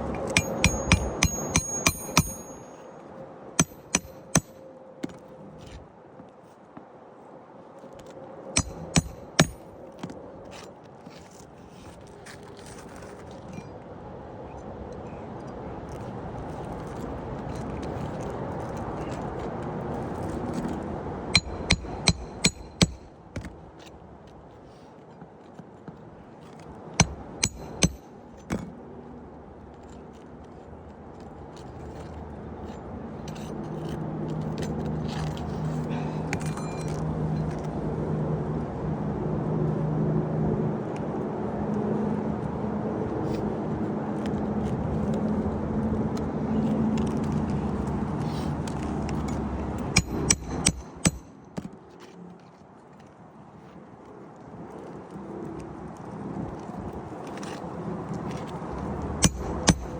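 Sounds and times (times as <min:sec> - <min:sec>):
hammer striking roofing nails: 0:00.1 - 0:02.7, 0:03.6 - 0:04.6, 0:08.6 - 0:09.7, 0:21.4 - 0:23.6, 0:27.0 - 0:28.7, 0:49.8 - 0:51.7, 0:59.2 - 0:59.9.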